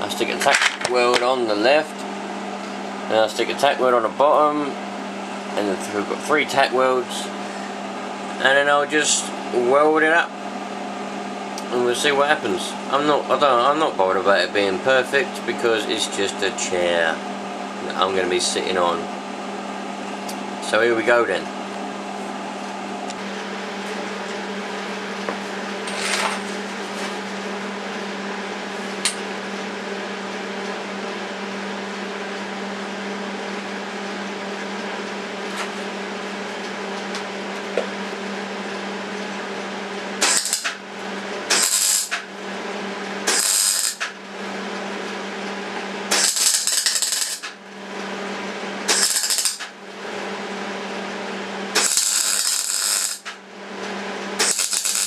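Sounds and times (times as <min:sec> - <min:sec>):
electrical hum: 0:00.0 - 0:55.0
welding arc crackle: 0:40.2 - 0:40.8, 0:41.4 - 0:42.3, 0:43.2 - 0:44.2, 0:46.1 - 0:47.6, 0:48.9 - 0:49.8, 0:51.7 - 0:53.4, 0:54.4 - 0:55.0.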